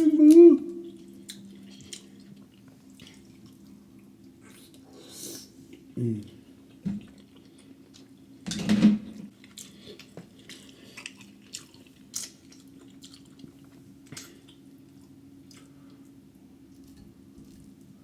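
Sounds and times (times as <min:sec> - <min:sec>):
faint low hum: 0:00.0 - 0:18.0
wet chewing and mouth smacks: 0:00.3 - 0:04.8, 0:09.4 - 0:16.0.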